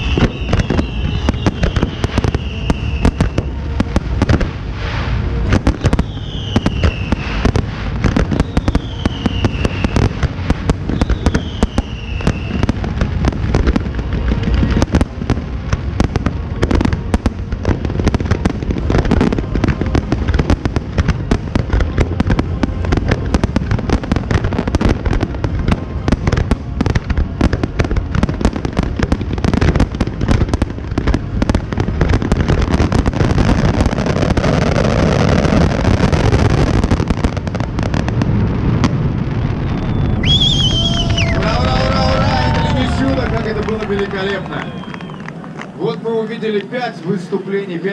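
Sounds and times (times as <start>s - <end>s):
falling firework whistles: 0.0s - 3.6s, 5.6s - 12.9s, 39.4s - 45.5s
fireworks bangs and crackling: 0.0s - 47.9s.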